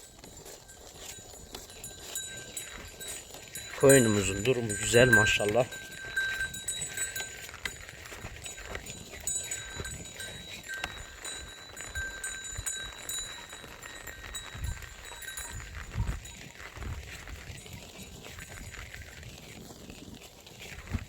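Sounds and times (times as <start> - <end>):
faint tinkling tones: 0.0 - 16.8
sheep grazing: 0.0 - 21.0.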